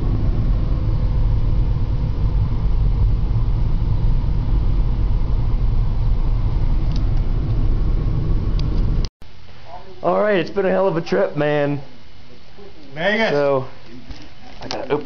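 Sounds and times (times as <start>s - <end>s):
car road and engine noise: 0.0s - 9.1s.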